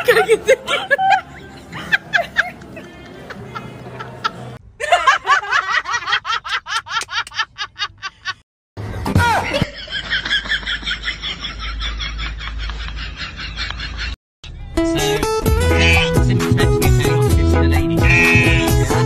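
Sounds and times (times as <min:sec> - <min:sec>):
high-pitched giggling laugh: 0:00.0 - 0:08.4, 0:15.7 - 0:17.2.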